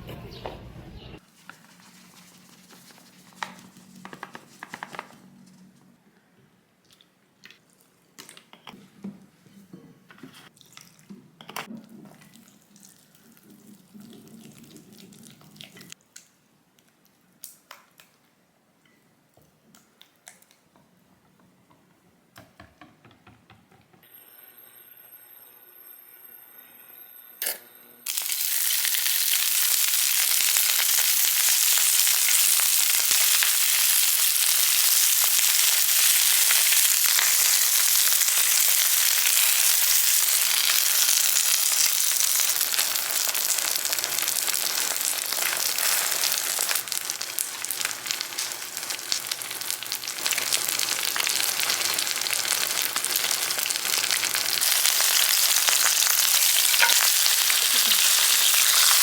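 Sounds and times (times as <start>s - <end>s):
food sizzling in a frying pan: 28.1s - 59.0s.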